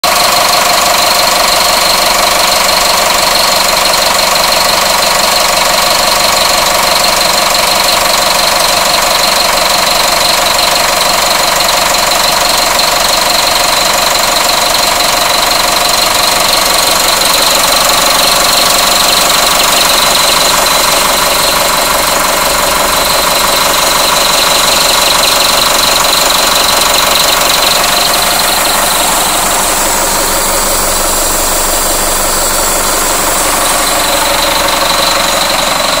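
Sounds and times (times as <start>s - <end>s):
diesel engine idling: 0.0s - 36.0s
high-pitched whine: 13.9s - 36.0s.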